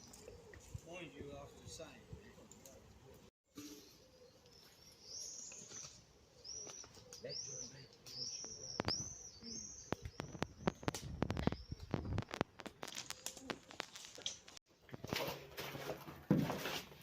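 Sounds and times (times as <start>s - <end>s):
songbird chirping: 3.6s - 12.1s.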